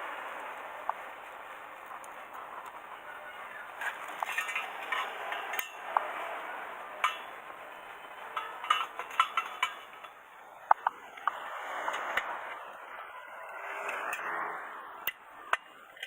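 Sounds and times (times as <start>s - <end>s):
light metallic clinks and taps: 7.0s - 11.4s.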